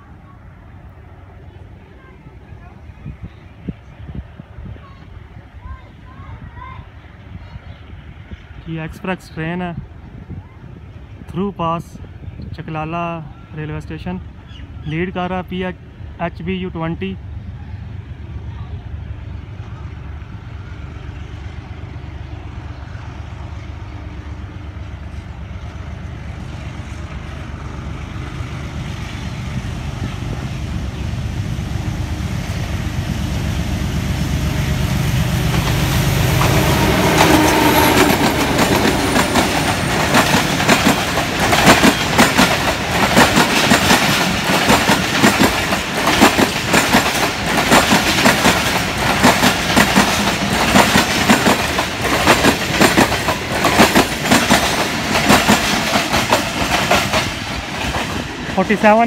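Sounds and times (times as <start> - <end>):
diesel locomotive engine: 0.0 - 59.0
coaches clattering over rail joints: 35.4 - 59.0.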